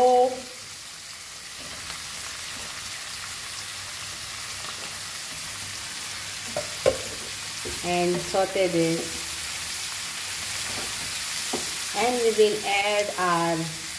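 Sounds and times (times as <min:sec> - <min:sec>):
onions sizzling in hot oil: 0:00.0 - 0:13.9
tomatoes added to pan: 0:00.7 - 0:12.7.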